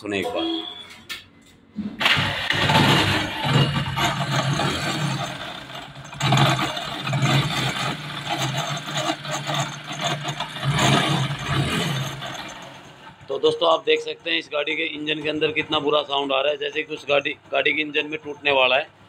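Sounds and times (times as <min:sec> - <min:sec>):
bad mechanical noise: 0:01.8 - 0:13.4
motorcycle engine running: 0:02.4 - 0:13.2.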